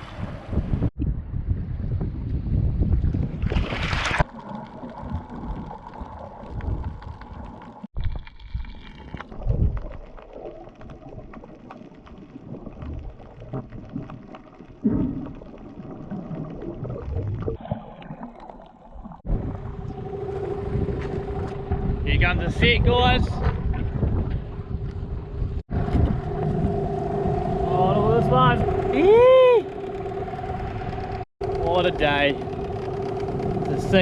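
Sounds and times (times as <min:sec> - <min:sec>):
wind and boat noise: 0:00.0 - 0:34.0
underwater gurgling: 0:03.4 - 0:34.0
small clicks and crackles: 0:04.2 - 0:17.2.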